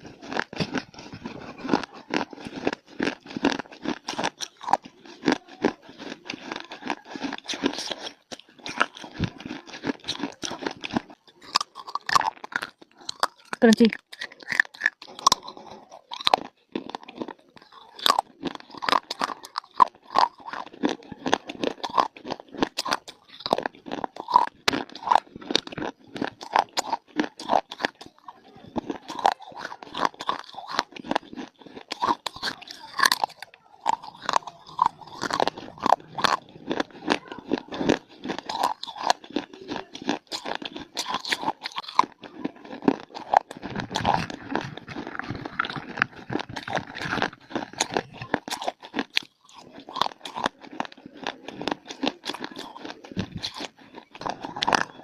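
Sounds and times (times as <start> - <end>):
crunching brittle baked clay: 0.0 - 55.0.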